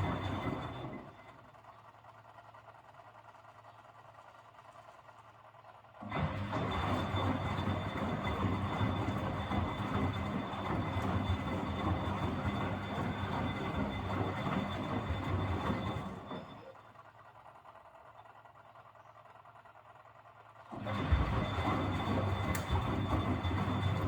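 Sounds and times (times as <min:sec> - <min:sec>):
washing machine motor hum: 0:06.0 - 0:16.7, 0:20.7 - 0:24.0
laundry tumbling in drum: 0:20.8 - 0:24.0.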